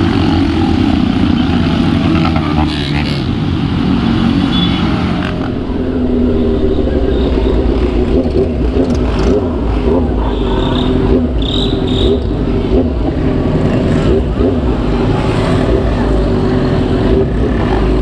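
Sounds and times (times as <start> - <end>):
motorcycle engine running: 0.0 - 18.0
wind rush on microphone: 3.5 - 13.5.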